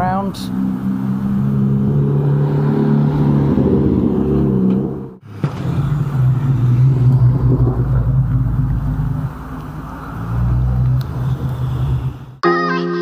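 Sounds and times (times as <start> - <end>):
car engines idling low: 4.2 - 12.4.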